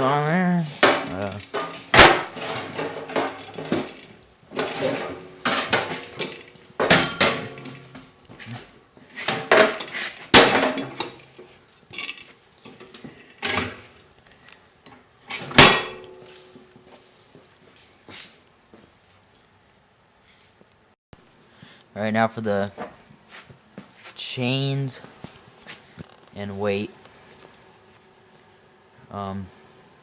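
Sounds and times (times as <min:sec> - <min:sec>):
metal tools clanking: 0:00.9 - 0:07.9
sharp metal strikes: 0:15.6 - 0:16.2.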